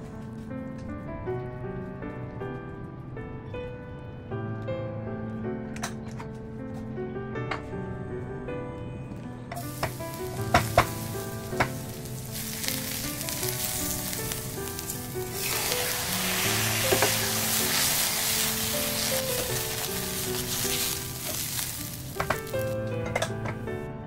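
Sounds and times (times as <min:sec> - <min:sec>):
background music of held notes: 0:00.0 - 0:24.0
spatula stirring rice: 0:09.6 - 0:22.7
food sizzling in hot oil: 0:09.6 - 0:22.9.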